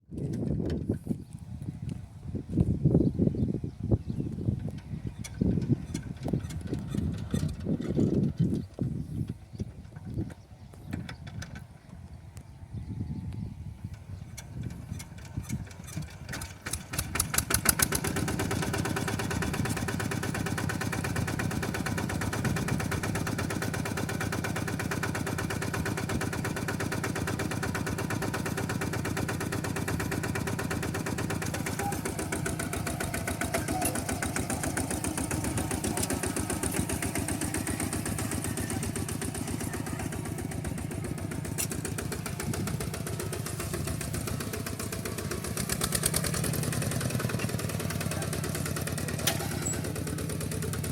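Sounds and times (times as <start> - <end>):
tractor engine running: 0.0 - 50.9.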